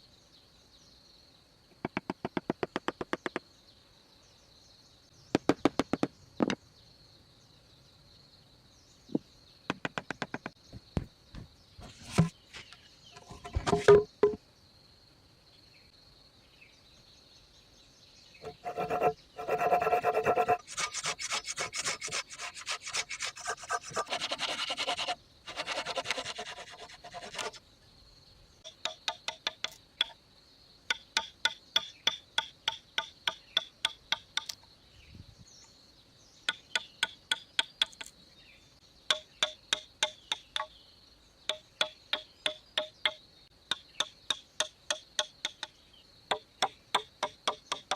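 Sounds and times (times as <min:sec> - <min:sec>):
insect drone: 0:00.0 - 0:47.9
rasping strokes on wood: 0:18.4 - 0:27.6.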